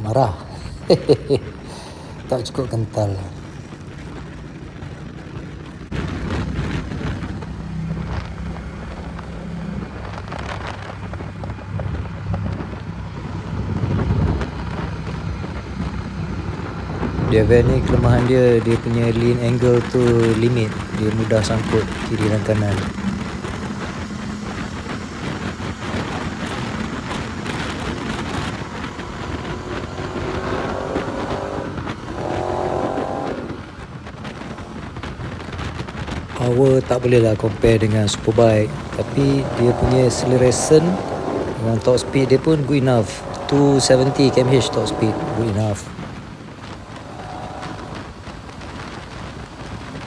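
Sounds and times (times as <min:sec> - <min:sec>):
wind rushing over microphone: 0:00.0 - 0:50.0
motorcycle engine running: 0:19.3 - 0:39.8.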